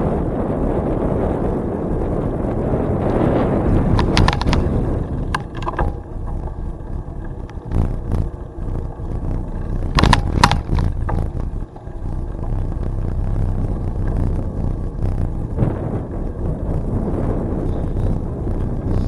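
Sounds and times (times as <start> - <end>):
bicycle tyres on trail: 0.0 - 19.0
wind on microphone: 0.0 - 19.0
bike sharp knocks: 3.9 - 12.6.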